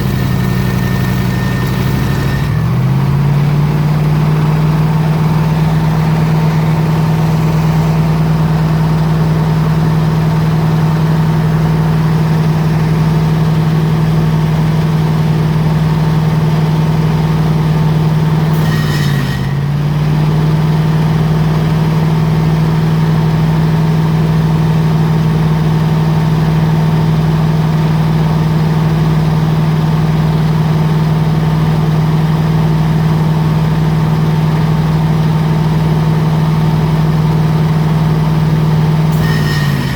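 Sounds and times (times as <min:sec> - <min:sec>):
air compressor humming: 0:00.0 - 0:10.0.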